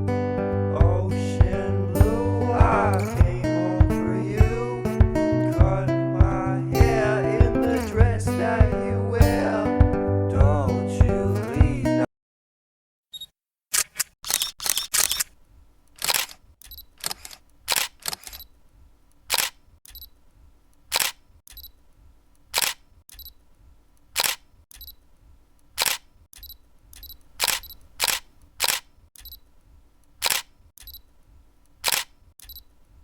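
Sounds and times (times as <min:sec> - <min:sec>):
sharp mechanical clicks: 0:13.2 - 0:18.5, 0:19.1 - 0:21.8, 0:22.4 - 0:23.4, 0:24.0 - 0:25.0, 0:25.6 - 0:29.4, 0:30.0 - 0:32.7.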